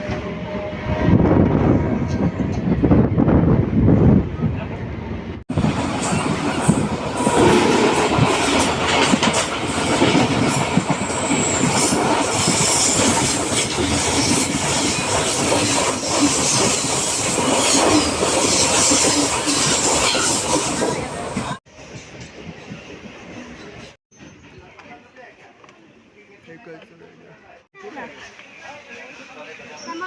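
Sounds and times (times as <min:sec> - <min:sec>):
train wheels clattering over track: 0:05.5 - 0:24.0.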